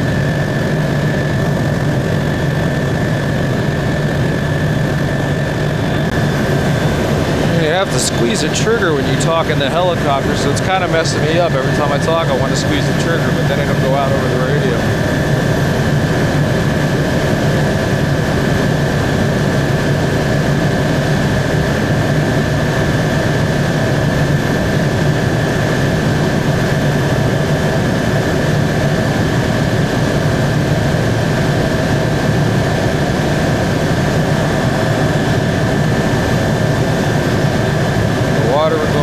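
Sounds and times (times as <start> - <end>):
high whine: 0.0 - 19.1, 30.6 - 39.0
helicopter cabin drone: 0.0 - 39.0.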